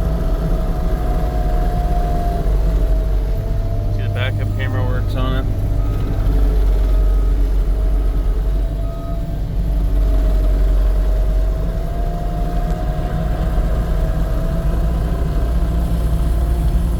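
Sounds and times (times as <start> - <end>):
diesel engine running: 0.0 - 16.9
steady whine: 3.9 - 5.6.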